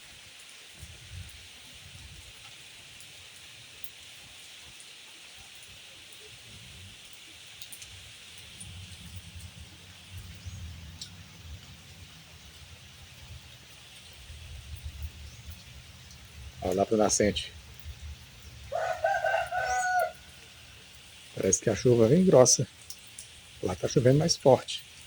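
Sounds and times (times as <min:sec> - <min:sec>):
light rain falling: 0:00.0 - 0:25.0.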